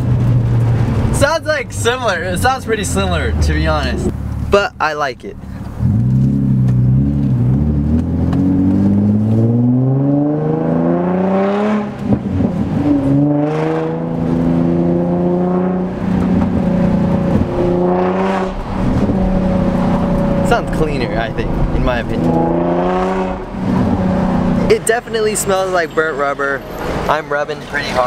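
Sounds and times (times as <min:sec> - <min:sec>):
car engine accelerating hard: 0:05.6 - 0:28.0.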